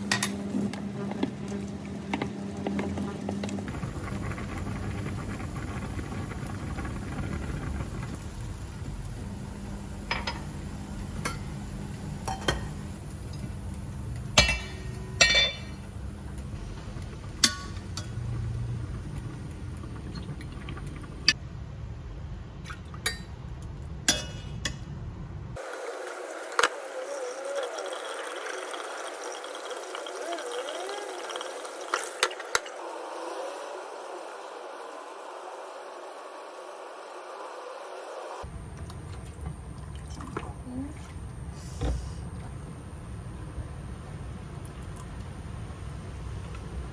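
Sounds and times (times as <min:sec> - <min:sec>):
dishes and utensils clinking: 0:00.0 - 0:00.5, 0:12.3 - 0:12.8, 0:14.4 - 0:15.8, 0:24.1 - 0:24.8
steady low hum: 0:00.0 - 0:21.4.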